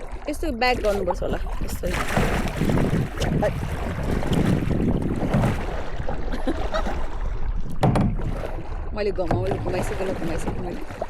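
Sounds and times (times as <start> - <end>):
paddle strokes splashing water: 0.0 - 11.0
wind rumbling on microphone: 0.0 - 11.0.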